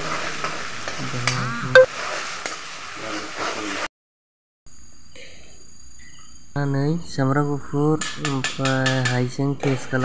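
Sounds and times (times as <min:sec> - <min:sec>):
vegetables sizzling in oil: 0:00.0 - 0:03.9.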